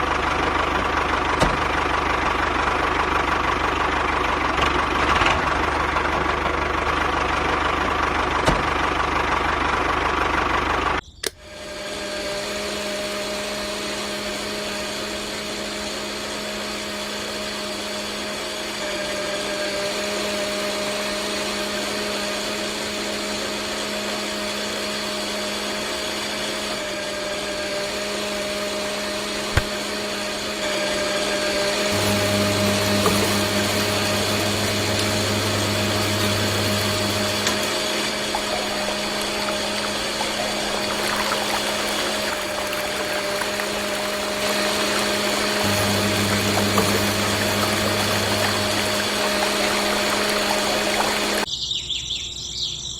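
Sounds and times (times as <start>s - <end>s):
small electric motors whining: 11.3s - 51.5s.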